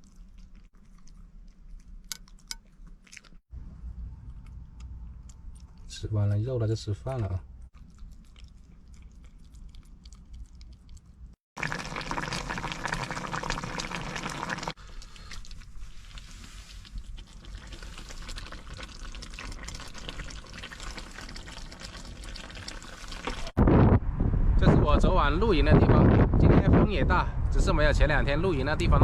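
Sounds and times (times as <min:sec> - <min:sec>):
strong wind on microphone: 0:23.6 - 0:29.0.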